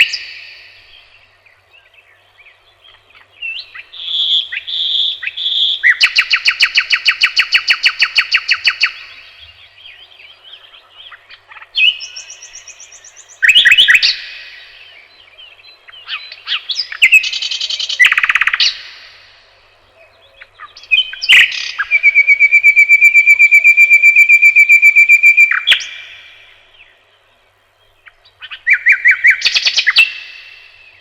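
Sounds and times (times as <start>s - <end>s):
songbirds singing: 0.0s - 31.0s
fast high bird trill: 21.2s - 26.4s.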